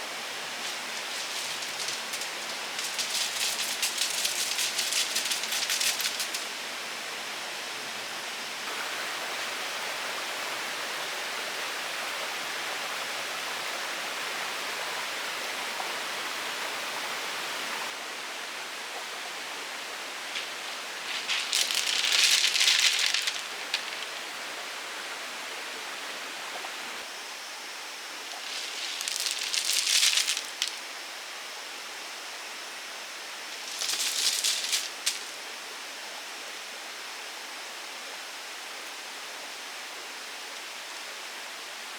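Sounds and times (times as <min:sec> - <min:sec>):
rain falling in forest: 0:00.0 - 0:41.9
close rustling: 0:00.2 - 0:06.6, 0:20.2 - 0:24.4, 0:28.2 - 0:30.8, 0:33.5 - 0:35.4.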